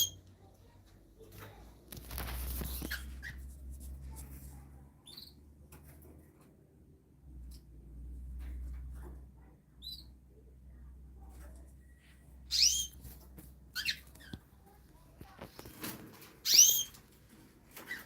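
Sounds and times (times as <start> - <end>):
small birds chirping: 0.0 - 0.8, 2.1 - 3.5, 5.0 - 5.6, 9.6 - 10.4, 11.8 - 14.7, 16.4 - 17.1.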